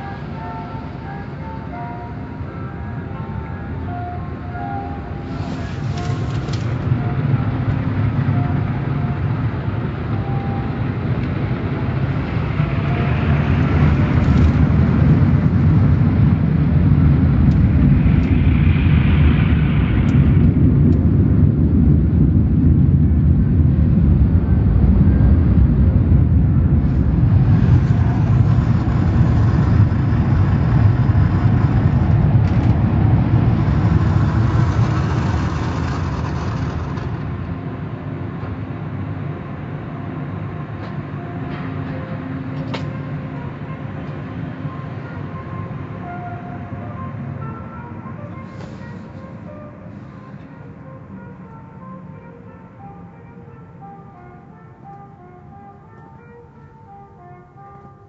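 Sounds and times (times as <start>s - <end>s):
car wash equipment rumbling: 3.2s - 46.0s.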